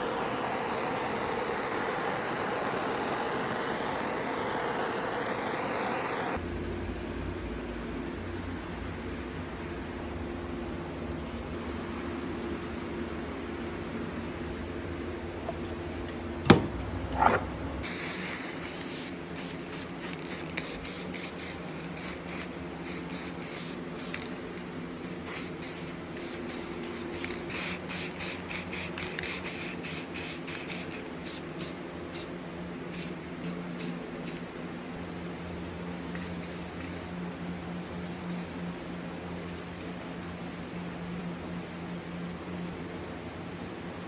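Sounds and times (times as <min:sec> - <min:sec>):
spray hiss bursts: 0:00.0 - 0:06.4, 0:17.8 - 0:32.3, 0:32.9 - 0:34.5, 0:37.8 - 0:38.5, 0:39.6 - 0:42.4, 0:43.2 - 0:44.0.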